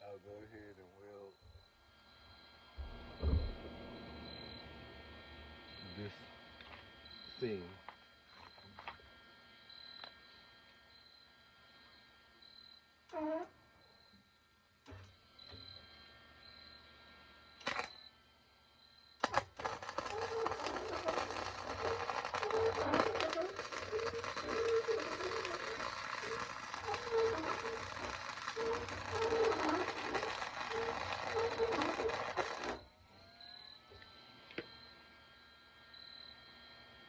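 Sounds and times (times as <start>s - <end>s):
arc welder crackling sizzle: 1.8s - 14.2s, 17.5s - 18.0s, 19.2s - 35.0s
welder clicks: 19.2s - 32.8s.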